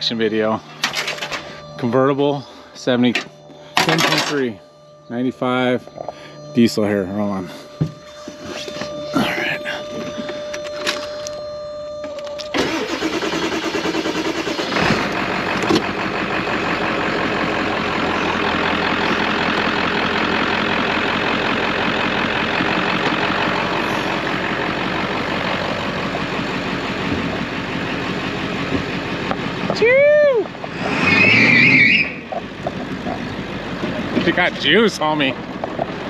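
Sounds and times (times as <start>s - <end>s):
diesel engine cranking and starting: 0.0s - 4.5s, 12.0s - 36.0s
steady tone: 0.0s - 12.2s
diesel engine idling: 0.0s - 36.0s.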